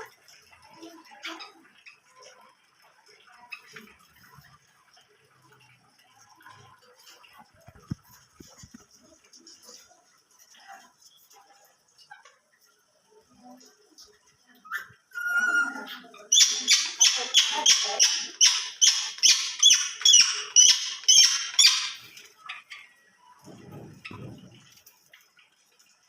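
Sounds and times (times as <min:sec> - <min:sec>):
pet bird chirping: 0:14.7 - 0:22.7.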